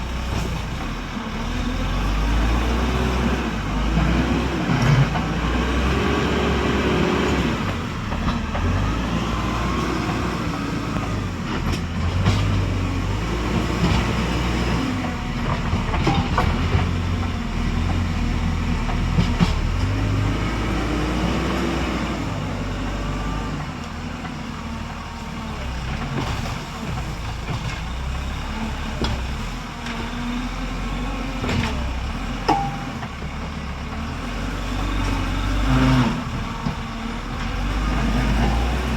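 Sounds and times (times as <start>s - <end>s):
tractor engine revving: 0.0s - 38.9s
metallic clanks and knocks: 15.4s - 20.2s, 31.4s - 33.3s.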